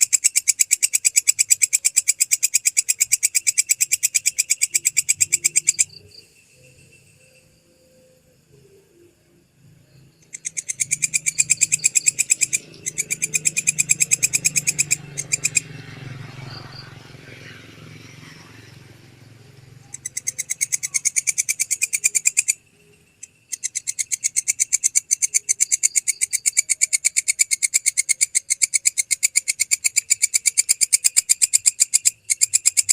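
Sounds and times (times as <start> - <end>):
katydid calling rasping pulses: 0.0 - 9.1, 9.8 - 32.9.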